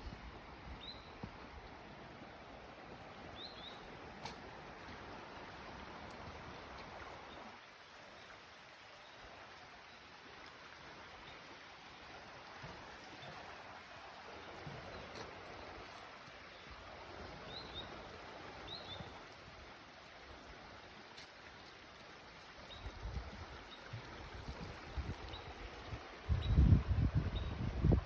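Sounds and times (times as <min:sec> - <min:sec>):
river water rushing: 0:00.0 - 0:26.3.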